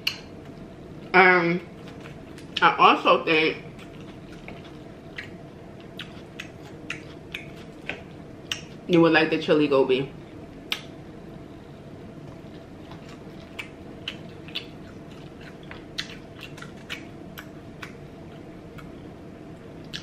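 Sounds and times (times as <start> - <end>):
faint steady hum: 0.0 - 20.0
chewing food: 1.7 - 2.7, 3.6 - 8.8, 12.2 - 19.0
wet mouth clicks and smacks: 10.7 - 10.9.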